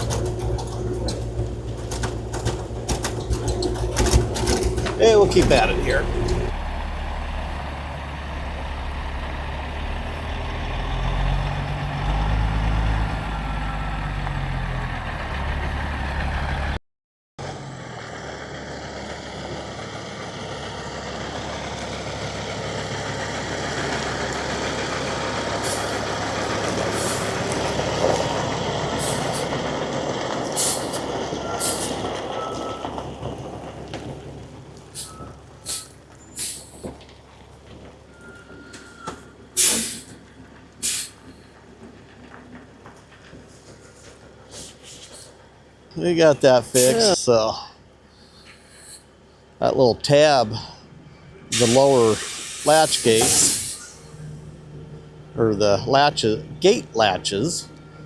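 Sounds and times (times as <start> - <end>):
diesel engine rumbling: 0.0 - 16.8, 17.4 - 58.0
air hissing: 39.6 - 40.2, 40.8 - 41.2, 46.6 - 47.1, 48.2 - 49.1, 51.5 - 54.2.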